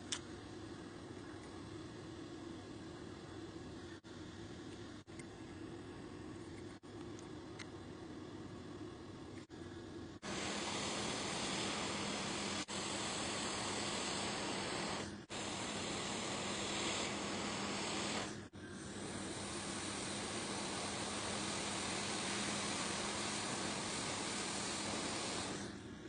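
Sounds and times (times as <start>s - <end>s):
rushing air hiss: 10.2s - 26.0s.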